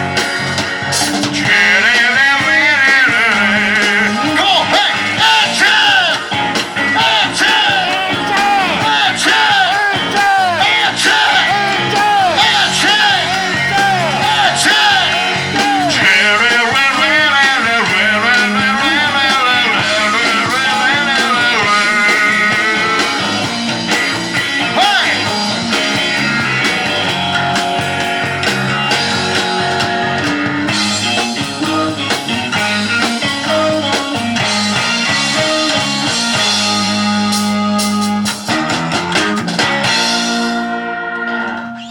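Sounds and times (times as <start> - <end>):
rock band playing live: 0.0 - 41.9.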